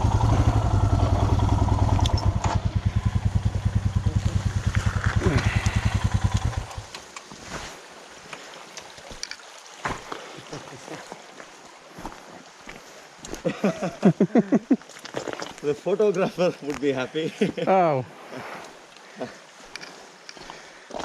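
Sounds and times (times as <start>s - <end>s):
motorcycle engine idling: 0.0s - 7.0s
faint outdoor noise: 0.0s - 21.0s.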